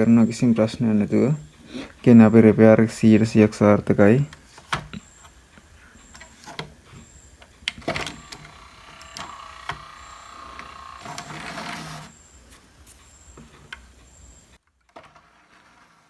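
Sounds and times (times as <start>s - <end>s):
disc drive motor whirring: 3.8s - 16.0s
clicks: 4.2s - 14.1s.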